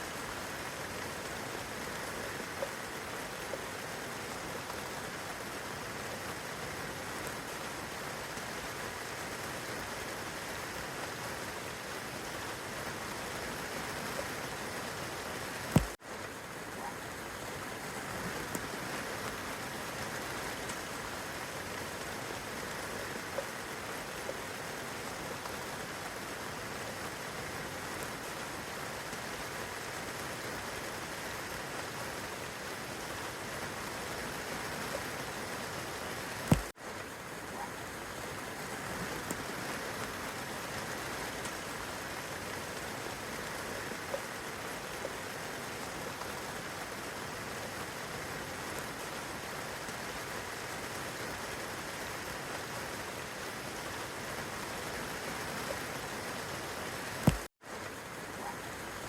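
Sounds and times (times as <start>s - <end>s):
rain on leaves and grass: 0.0s - 59.0s
raindrop ticking: 15.6s - 16.0s, 16.7s - 27.3s, 36.4s - 45.2s, 57.2s - 57.5s.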